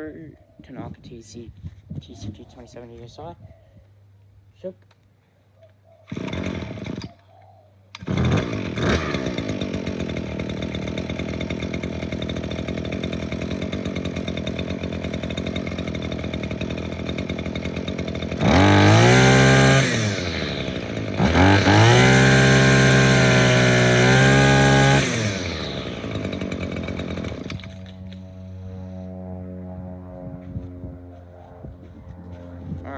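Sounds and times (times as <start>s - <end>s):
trimmer engine idling and revving: 6.1s - 7.2s, 7.9s - 32.9s
starter cord pull: 7.9s - 10.3s, 18.4s - 28.2s.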